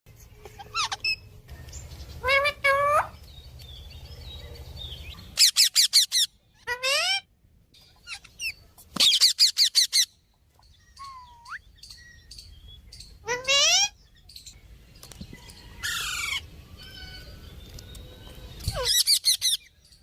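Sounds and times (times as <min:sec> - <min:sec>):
parrots squawking and chirping: 0:00.4 - 0:03.3, 0:05.0 - 0:10.2, 0:10.9 - 0:12.3, 0:13.0 - 0:14.2, 0:15.6 - 0:19.7.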